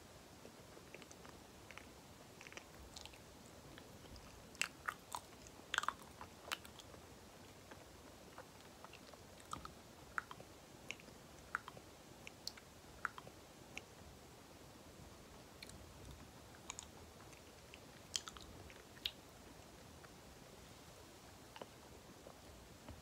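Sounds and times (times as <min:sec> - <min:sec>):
lips and tongue clicks: 0:00.9 - 0:13.9, 0:16.6 - 0:19.2
mouth chewing: 0:00.9 - 0:13.9, 0:15.6 - 0:19.2.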